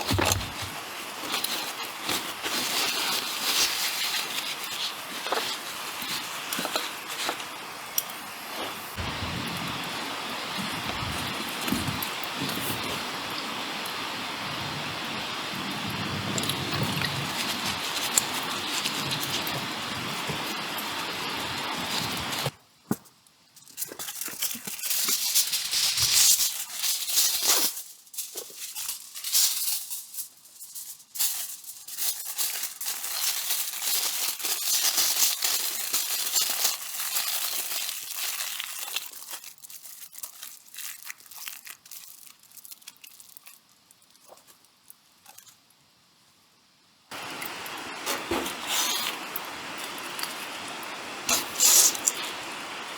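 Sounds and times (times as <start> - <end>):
packaging crinkling and tearing: 0.0 - 9.0, 16.4 - 22.5, 23.6 - 45.6, 47.1 - 50.6, 51.3 - 52.5
steady hiss: 0.0 - 52.9.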